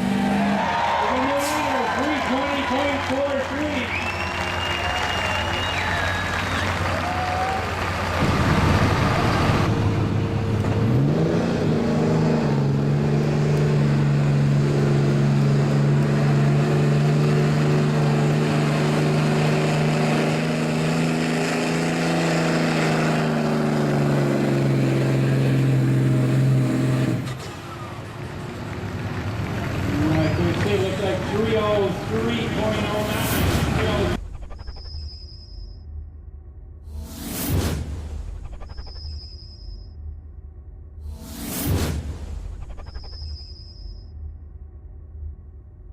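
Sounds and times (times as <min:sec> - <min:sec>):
diesel truck engine revving: 0:00.0 - 0:34.3.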